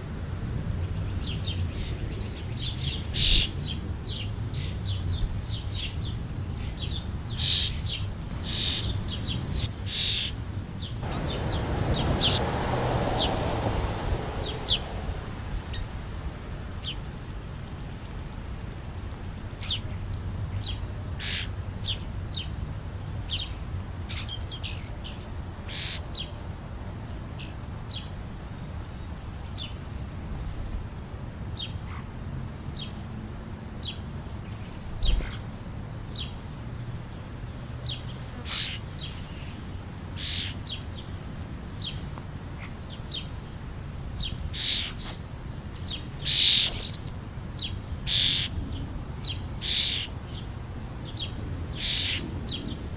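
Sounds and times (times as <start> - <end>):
birds chirping: 0.8 - 18.2, 44.2 - 52.9
rush of noise: 11.0 - 17.6
steady low rumble: 11.0 - 18.5.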